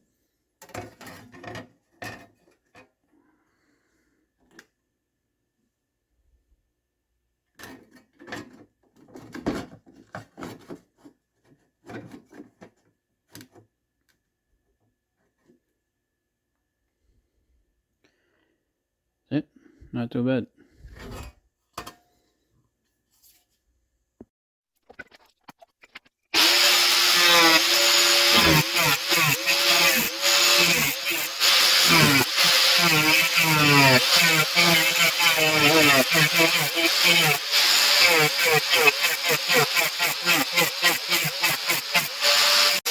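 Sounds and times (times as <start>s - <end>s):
power tool running: 26.4s - 42.9s.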